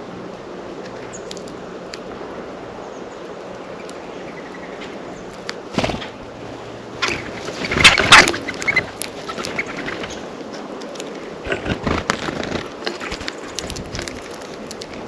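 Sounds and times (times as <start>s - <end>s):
birds pecking clicks and taps: 0.8s - 2.1s, 3.5s - 4.0s, 7.0s - 11.2s, 12.0s - 15.0s
birds scuffling: 3.5s - 15.0s.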